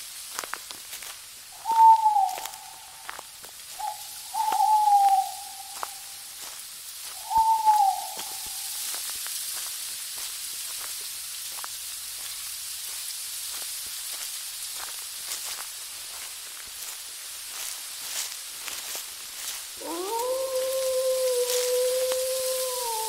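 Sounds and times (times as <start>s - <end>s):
steady hiss: 0.0s - 23.0s
drawn-out hooting calls: 1.6s - 3.1s, 3.7s - 6.2s, 7.2s - 8.8s, 19.8s - 23.0s.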